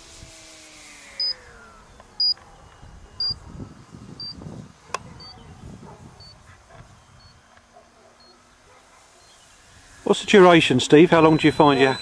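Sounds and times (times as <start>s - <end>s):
wind rumbling on microphone: 1.4s - 7.5s
short high beeps: 3.2s - 3.4s, 11.2s - 12.0s.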